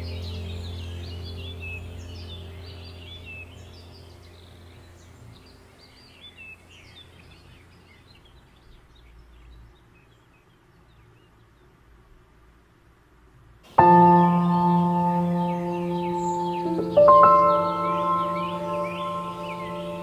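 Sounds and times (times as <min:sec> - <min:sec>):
small birds chirping: 0:00.0 - 0:12.7, 0:13.6 - 0:20.0
faint low hum: 0:00.0 - 0:20.0.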